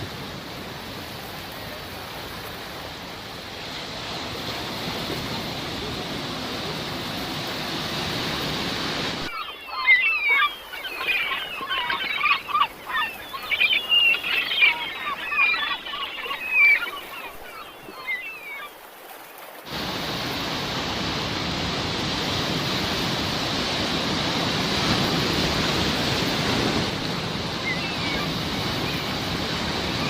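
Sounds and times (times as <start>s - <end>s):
sea waves washing on shore: 0.0s - 30.0s
gulls calling: 8.4s - 18.8s, 24.8s - 30.0s.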